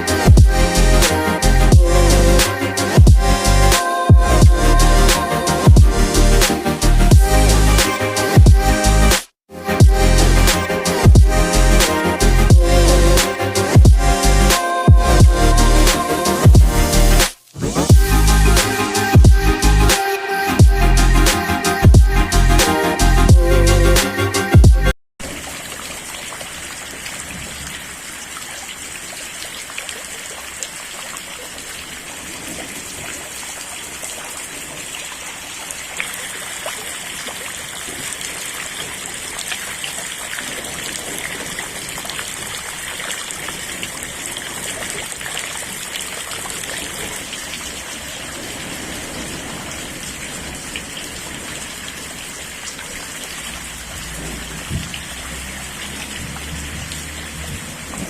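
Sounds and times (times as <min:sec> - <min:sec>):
steady rain falling: 0:25.2 - 0:58.0.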